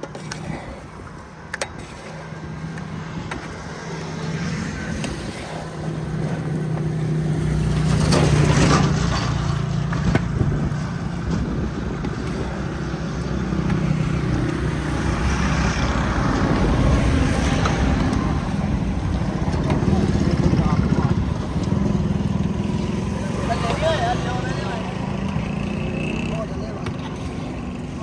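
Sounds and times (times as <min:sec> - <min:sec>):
motor engine humming: 0:00.7 - 0:28.0.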